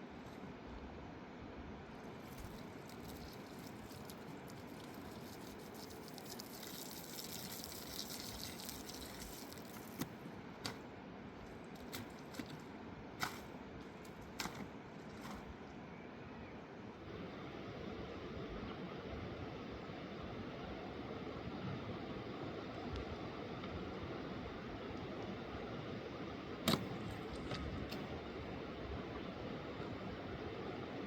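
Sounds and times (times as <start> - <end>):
wet dripping and squelching: 2.2 - 10.1.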